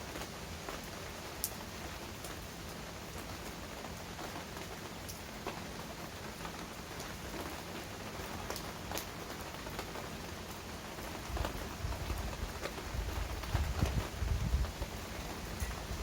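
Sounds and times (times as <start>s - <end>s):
heavy rain falling: 0.0s - 16.0s
raindrops ticking on a surface: 0.0s - 16.0s.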